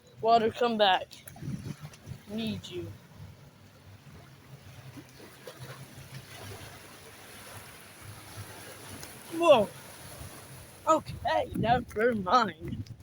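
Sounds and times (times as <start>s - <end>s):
ocean surf washing up beach: 4.1s - 13.0s.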